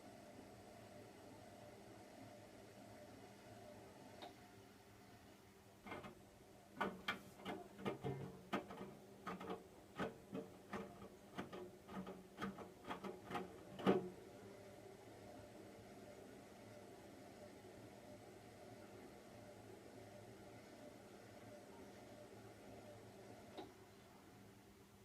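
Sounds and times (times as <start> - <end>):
laundry tumbling in washing machine: 5.8 - 14.4.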